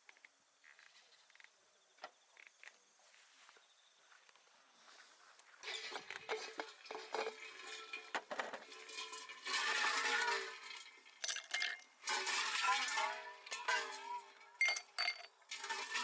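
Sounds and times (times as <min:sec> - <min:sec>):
cookware and utensils clinking: 0:05.6 - 0:16.0.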